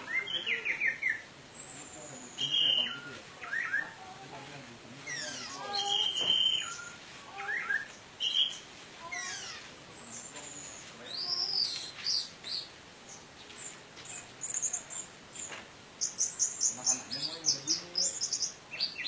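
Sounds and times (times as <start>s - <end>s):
thrush singing whistled phrases: 0.0s - 4.0s, 5.1s - 8.6s.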